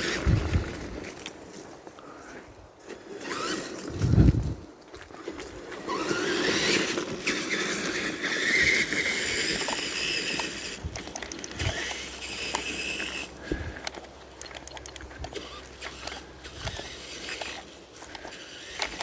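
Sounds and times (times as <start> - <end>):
toy truck motor whining: 0.0 - 0.6, 3.1 - 4.5, 5.8 - 19.0
rustle and scrape of grass: 0.0 - 19.0
small clicks: 9.6 - 13.2, 13.8 - 19.0.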